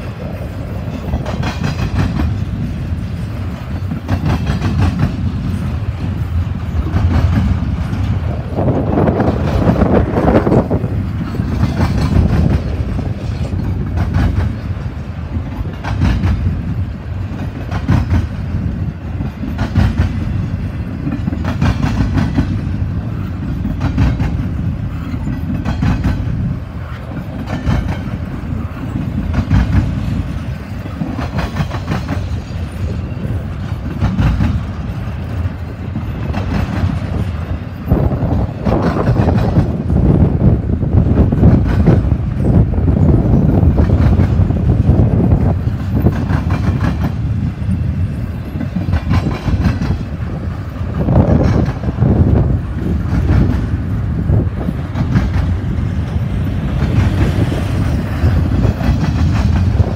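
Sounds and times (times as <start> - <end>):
wheels clacking over track: 0.0 - 40.2
freight train rumbling past: 0.0 - 59.9.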